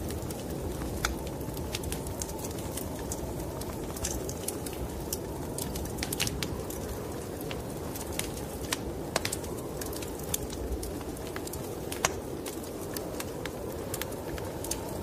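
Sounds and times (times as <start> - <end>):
fire crackling and popping: 0.0 - 15.0
low rush of wind: 0.0 - 15.0.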